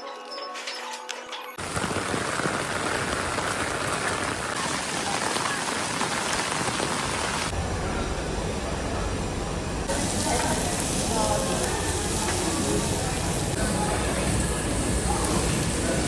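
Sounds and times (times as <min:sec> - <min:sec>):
heavy rain falling: 0:01.6 - 0:07.6.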